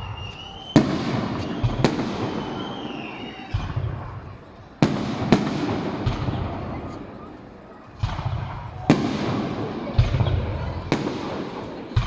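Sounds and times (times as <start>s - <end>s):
whistling firework shells: 0.0s - 5.5s
firework cracks: 0.0s - 12.0s
low firework booms: 0.0s - 12.0s.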